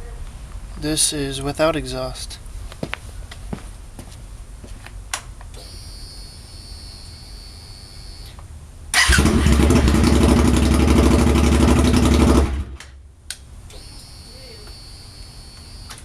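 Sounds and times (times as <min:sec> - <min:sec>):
faint steady high whine: 0:00.0 - 0:09.0, 0:12.9 - 0:16.0
loud motorcycle engine running: 0:09.1 - 0:12.8.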